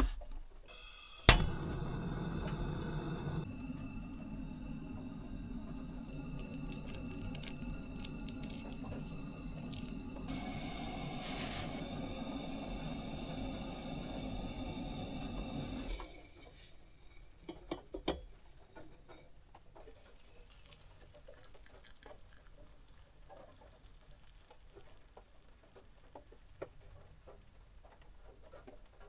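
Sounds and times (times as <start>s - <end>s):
steady running noise: 1.2s - 16.0s.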